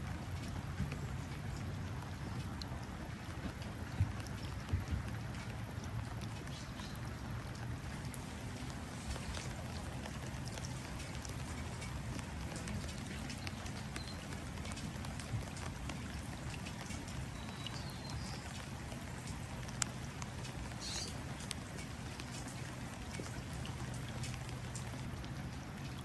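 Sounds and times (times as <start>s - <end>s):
rain pattering into water: 0.0s - 26.0s
faint bird chirps: 20.8s - 21.2s.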